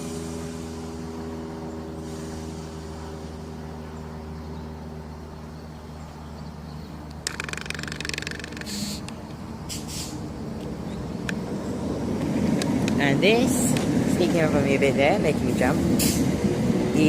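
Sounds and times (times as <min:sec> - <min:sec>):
rapid rattling clatter: 0:07.2 - 0:09.0.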